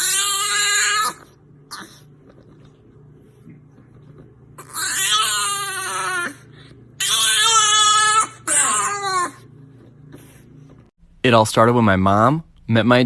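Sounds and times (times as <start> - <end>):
dog whining: 0.0 - 2.6, 4.0 - 10.4.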